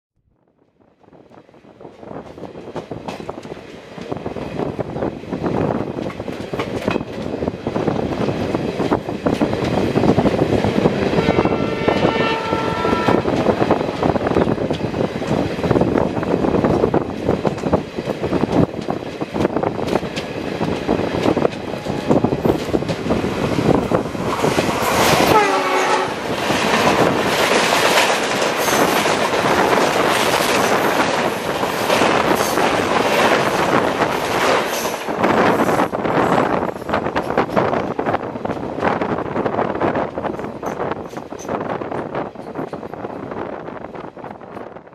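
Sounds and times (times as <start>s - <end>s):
passing train coaches rushing: 0.8s - 44.9s
train wheels clickety-clack: 1.3s - 44.7s
diesel locomotive horn: 11.1s - 13.5s, 25.2s - 26.3s
horn falling in pitch: 11.2s - 13.3s.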